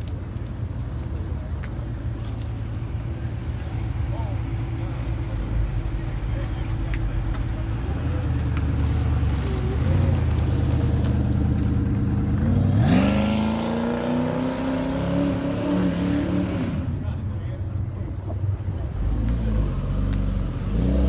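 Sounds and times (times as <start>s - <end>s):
car exhausts rumbling: 0.0s - 16.0s, 16.6s - 21.0s
car revving and accelerating: 3.5s - 17.0s, 18.8s - 21.0s.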